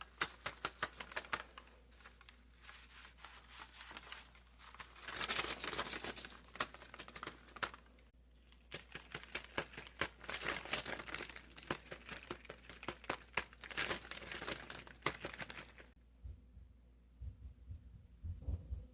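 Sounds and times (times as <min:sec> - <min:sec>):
paper crinkling: 0:00.0 - 0:16.0
low thumps: 0:16.1 - 0:18.9.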